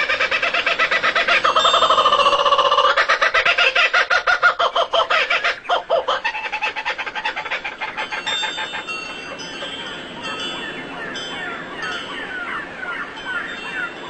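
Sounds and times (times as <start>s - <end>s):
bird calls: 0.0s - 14.0s.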